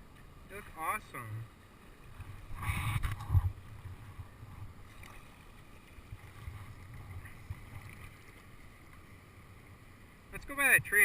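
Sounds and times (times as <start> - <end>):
paddle strokes in water: 1.7 - 9.6
wind rumble on microphone: 2.1 - 5.3, 6.0 - 8.3.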